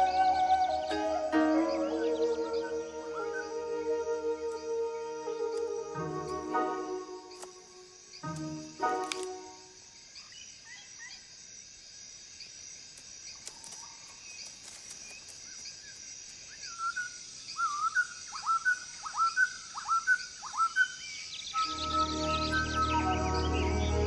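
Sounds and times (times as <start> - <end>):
bird calling in rising notes: 0.0 - 9.7, 21.6 - 24.0
steady high hiss: 0.0 - 20.4, 21.0 - 24.0.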